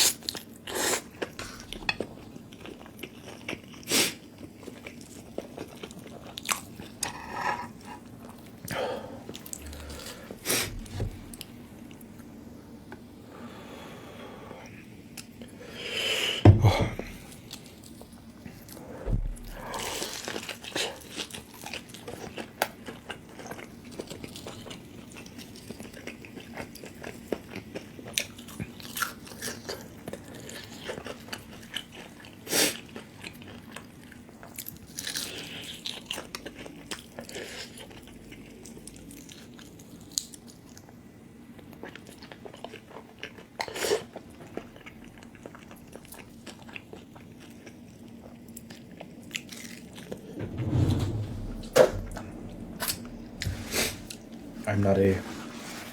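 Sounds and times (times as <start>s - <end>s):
person chewing fried chicken: 41.5s - 50.0s.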